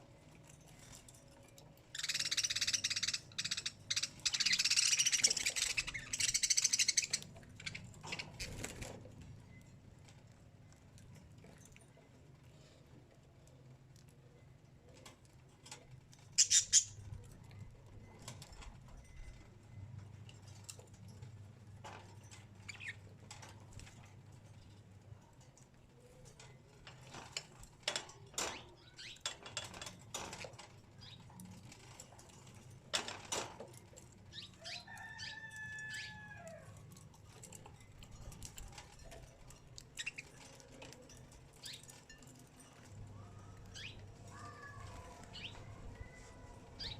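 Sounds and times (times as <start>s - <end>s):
birds rustling and tapping: 0.0s - 46.9s
wing flutters: 1.9s - 9.1s.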